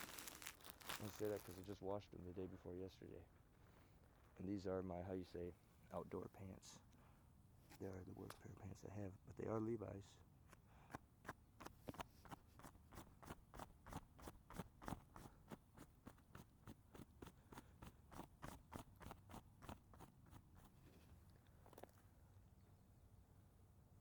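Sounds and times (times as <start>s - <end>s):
footsteps crunching on dry ground: 0.0s - 1.9s.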